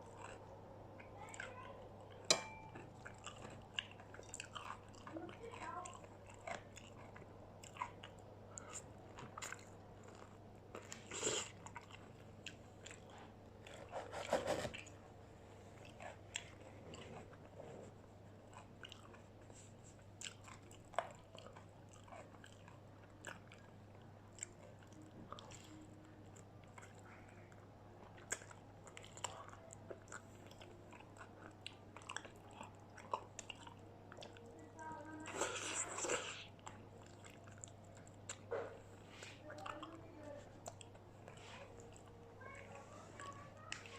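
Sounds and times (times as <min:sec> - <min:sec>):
faint low hum: 0:00.0 - 0:43.9.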